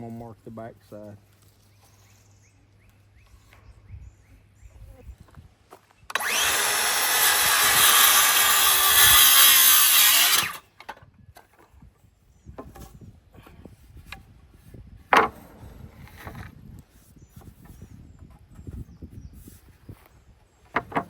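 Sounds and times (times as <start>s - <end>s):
power saw cutting wood: 6.1s - 10.6s
lumber knocks and clicks: 15.0s - 16.6s, 20.6s - 21.0s.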